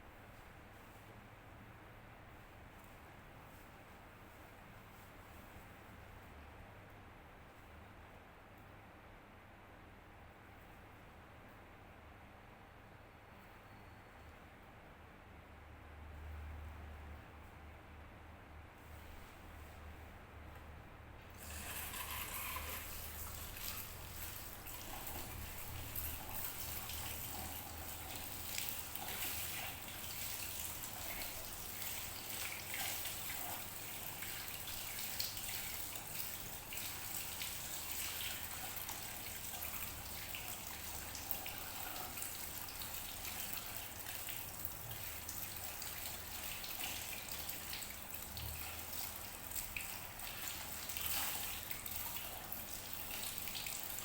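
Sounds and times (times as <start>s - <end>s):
water running and splashing: 21.4s - 54.0s.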